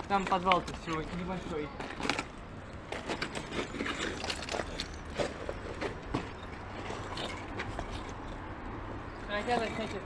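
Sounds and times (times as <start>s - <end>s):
footsteps scuffing on rubble: 0.0s - 10.0s.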